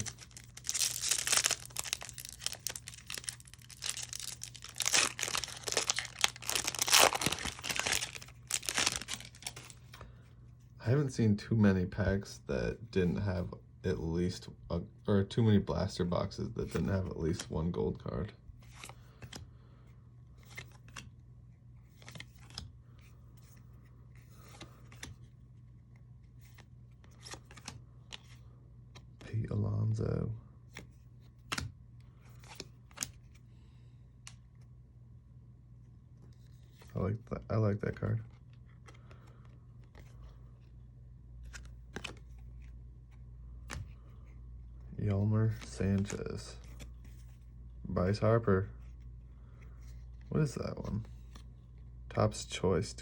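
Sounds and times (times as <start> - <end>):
wrapper tearing and crinkling: 0.0 - 9.8.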